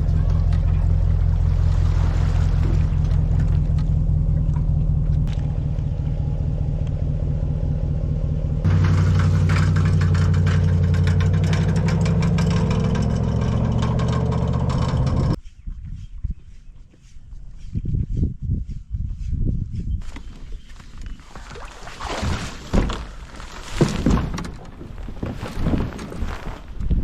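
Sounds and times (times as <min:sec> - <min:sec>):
engine running: 0:00.0 - 0:15.4.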